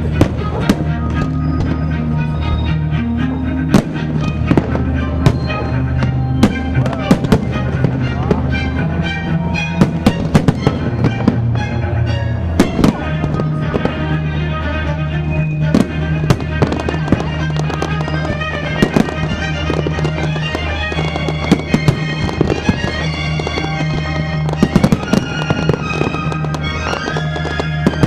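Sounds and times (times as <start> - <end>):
fireworks bursting and crackling: 0.0 - 2.0, 3.7 - 8.7, 9.7 - 11.6, 12.6 - 14.3, 15.3 - 28.0.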